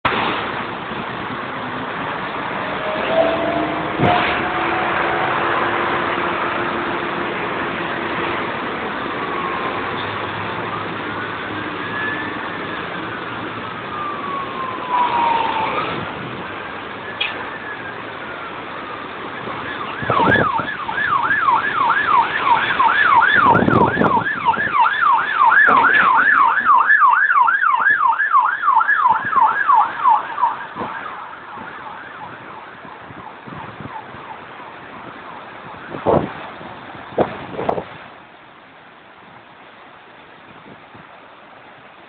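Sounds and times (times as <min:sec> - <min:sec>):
steady rushing noise: 0:00.0 - 0:26.7
emergency vehicle siren yelping: 0:02.5 - 0:36.7
loud thumps: 0:25.6 - 0:26.8.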